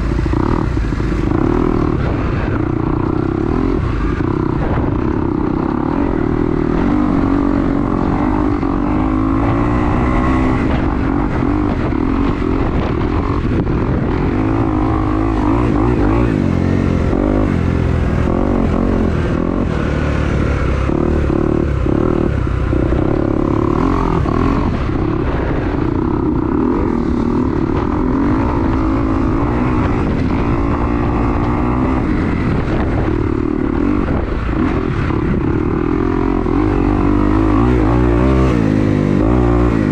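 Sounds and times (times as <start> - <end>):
dirt bike engine revving: 0.0 - 39.9
wind buffeting microphone: 0.0 - 39.9.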